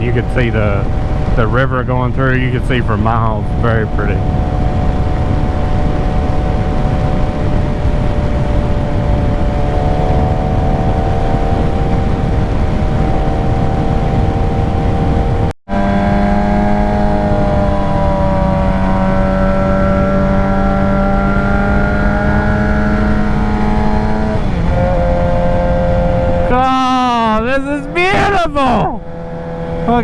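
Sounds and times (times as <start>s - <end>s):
motorcycle engine cruising: 0.0s - 30.0s
wind rush: 0.6s - 15.5s.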